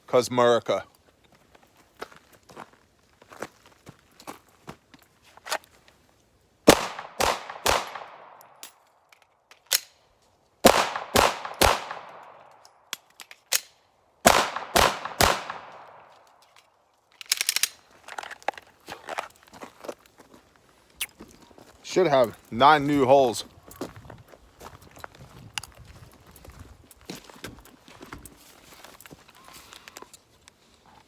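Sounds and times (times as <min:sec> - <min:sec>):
pistol shots: 0:06.7 - 0:08.4, 0:10.6 - 0:12.5, 0:14.2 - 0:16.1
magazine reload: 0:06.7 - 0:10.0, 0:10.7 - 0:18.6.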